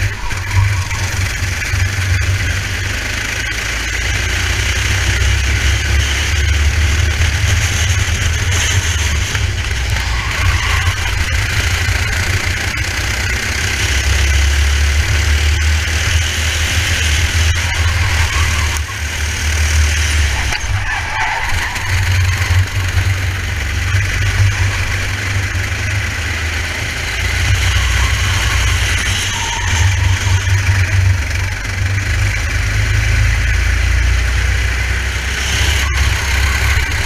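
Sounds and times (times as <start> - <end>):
go-kart engine racing: 0.0 - 37.0.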